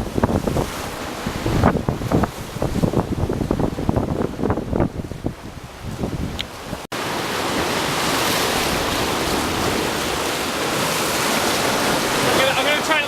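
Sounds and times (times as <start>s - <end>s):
wind buffeting microphone: 0.0s - 6.9s
surf rushing: 0.0s - 13.0s.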